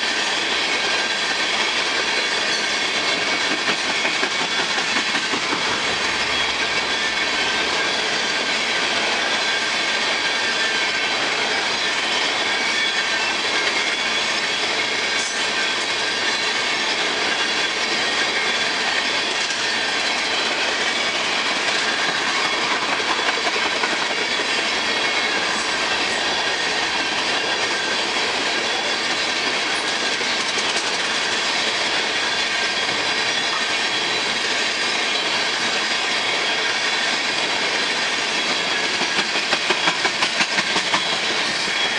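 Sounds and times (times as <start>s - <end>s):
train wheels rumbling on rail: 0.0s - 41.9s
clicking over rail joints: 29.2s - 31.2s.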